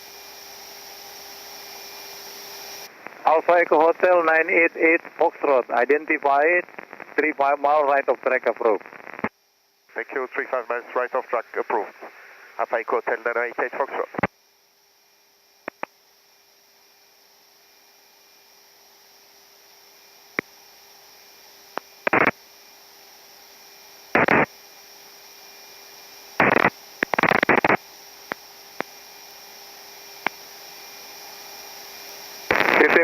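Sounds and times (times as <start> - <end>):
radio static hiss: 2.5 - 14.4, 15.6 - 15.9, 21.7 - 22.4, 24.0 - 33.0
sharp radio clicks: 3.0 - 5.2, 8.0 - 9.3, 12.7 - 14.3, 15.6 - 15.9, 21.7 - 22.4, 24.2 - 24.5, 26.4 - 28.9, 32.5 - 33.0
garbled radio transmission: 3.0 - 9.3, 9.9 - 14.3, 21.8 - 22.4, 24.2 - 24.5, 26.4 - 27.8, 32.5 - 33.0.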